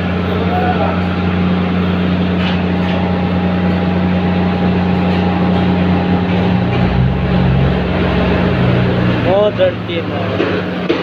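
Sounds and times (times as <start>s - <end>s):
deeper train engine note: 0.0s - 10.5s
diesel train engine hum: 0.0s - 11.0s.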